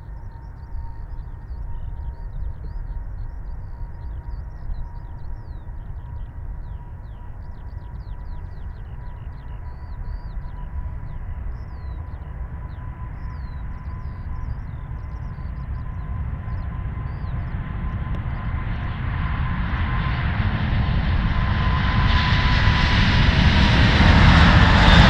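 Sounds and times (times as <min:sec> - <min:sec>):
distant jet engines spooling up: 0:00.0 - 0:25.0
small birds chirping: 0:00.1 - 0:18.6.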